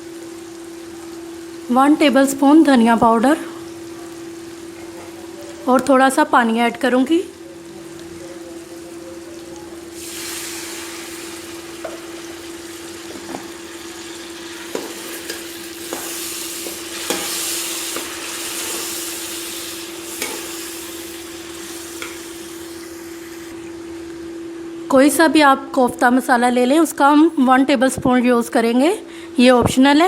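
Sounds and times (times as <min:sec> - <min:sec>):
curry sizzling in a pot: 0:00.0 - 0:24.9.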